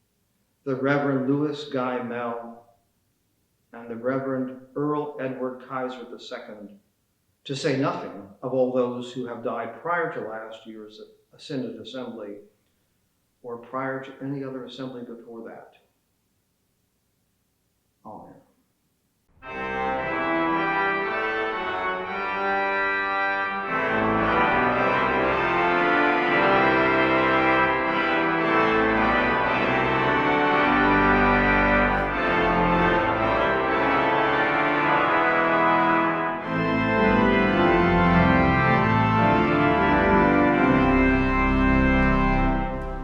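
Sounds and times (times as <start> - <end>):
organ playing sustained chords: 19.4 - 43.0.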